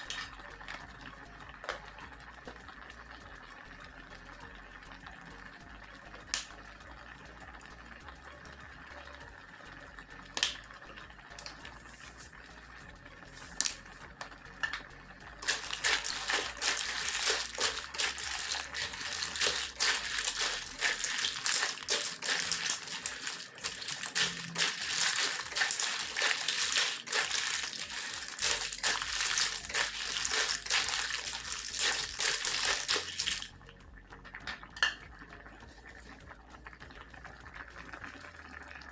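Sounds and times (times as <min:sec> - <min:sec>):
clams sizzling in a hot pan: 0:15.4 - 0:33.5.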